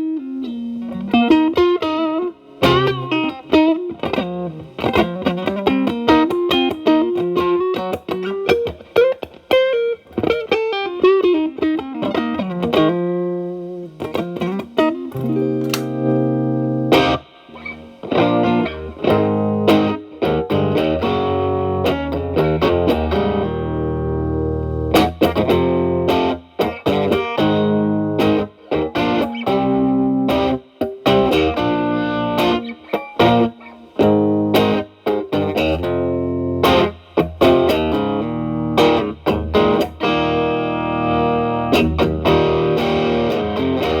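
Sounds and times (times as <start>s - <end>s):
distorted electric guitar: 0.0s - 44.0s.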